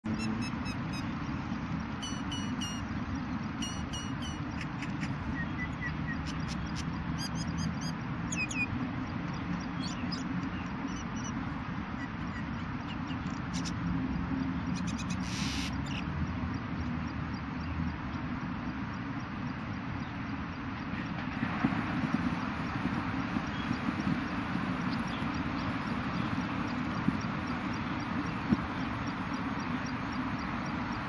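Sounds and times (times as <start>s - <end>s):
small birds chirping: 0.0s - 21.4s, 22.3s - 31.0s
steady rushing noise: 0.0s - 31.0s
buzzy bird call: 0.1s - 1.1s, 2.0s - 2.8s, 3.6s - 5.2s, 14.8s - 15.8s.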